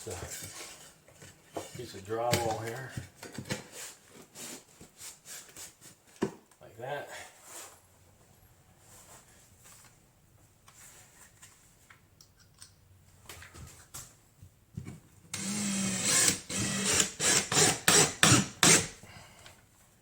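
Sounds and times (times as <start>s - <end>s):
power drill trigger bursts: 15.4s - 19.0s.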